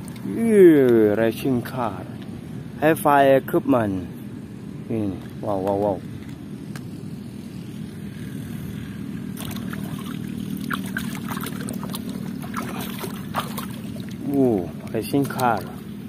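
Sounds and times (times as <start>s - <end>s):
water splashing: 9.4s - 15.9s.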